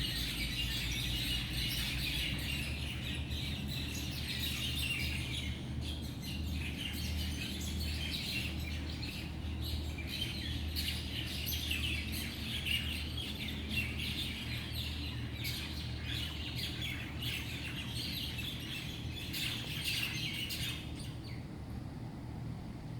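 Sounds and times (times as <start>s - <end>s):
birds chirping and calling: 0.0s - 21.4s.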